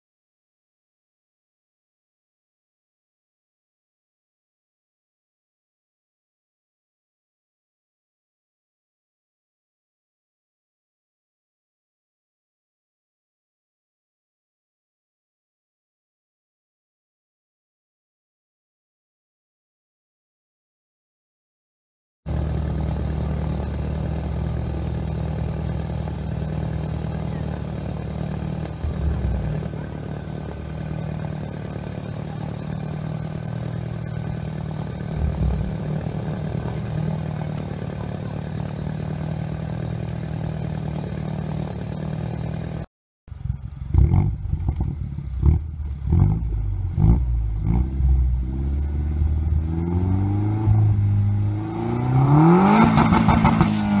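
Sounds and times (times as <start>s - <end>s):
car engine revving: 22.3s - 42.8s, 43.4s - 54.0s
car engine idling: 22.3s - 51.7s.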